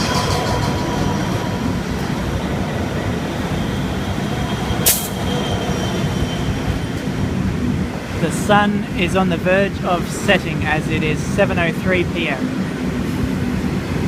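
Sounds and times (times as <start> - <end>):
freight train rumbling on rails: 0.0 - 14.0.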